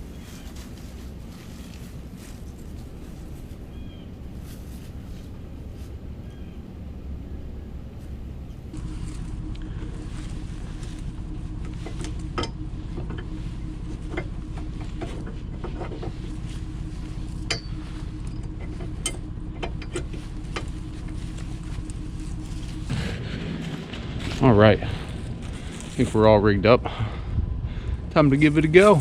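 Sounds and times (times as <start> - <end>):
vehicle engine idling: 0.0 - 29.0
sharp clicks and knocks: 11.6 - 16.5, 17.3 - 23.0.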